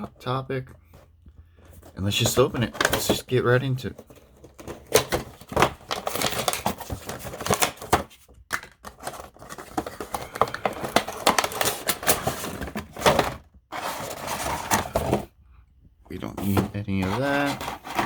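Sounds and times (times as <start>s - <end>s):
packaging rustling and crinkling: 1.6s - 15.3s.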